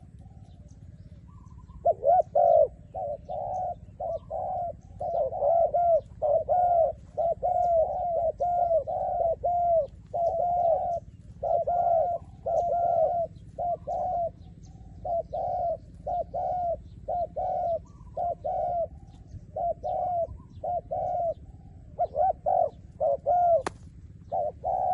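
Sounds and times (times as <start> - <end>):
dove cooing: 0.0 - 24.9.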